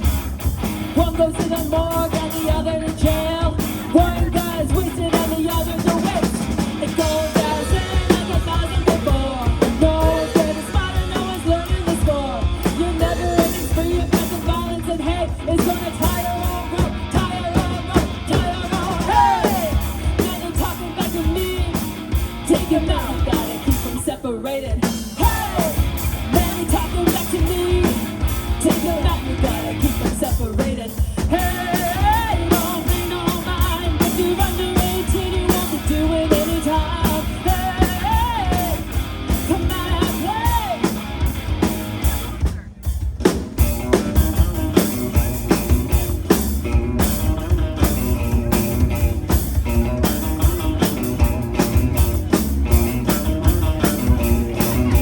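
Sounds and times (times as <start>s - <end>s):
bass guitar: 0.0s - 55.0s
drum kit beat: 0.0s - 55.0s
electric guitar: 0.0s - 55.0s
person singing: 0.9s - 42.7s.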